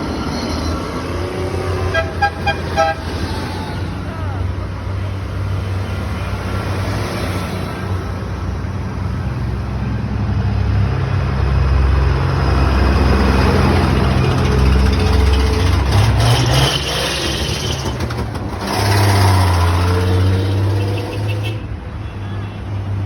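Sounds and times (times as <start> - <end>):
tractor engines running: 0.0 - 21.9.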